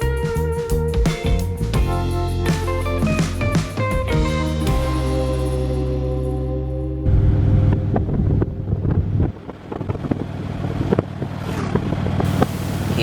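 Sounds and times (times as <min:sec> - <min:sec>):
motorcycle engine droning: 0:04.2 - 0:13.0.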